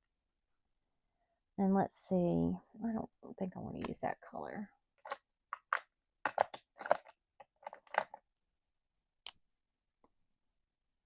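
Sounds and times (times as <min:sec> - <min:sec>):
pens clicking and rattling: 0:05.0 - 0:08.2.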